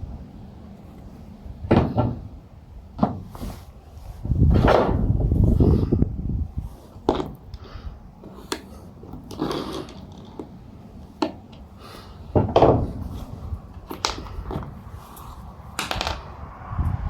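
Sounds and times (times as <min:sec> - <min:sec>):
wooden panels knocking: 0:01.7 - 0:02.3, 0:12.3 - 0:13.1
wooden clatter: 0:01.7 - 0:02.4, 0:12.3 - 0:15.2, 0:15.8 - 0:16.3.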